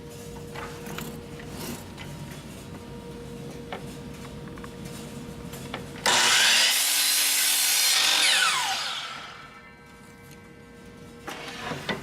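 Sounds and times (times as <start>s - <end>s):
miter saw cutting wood: 6.0s - 9.7s
saw blade spinning down whine: 6.0s - 9.8s.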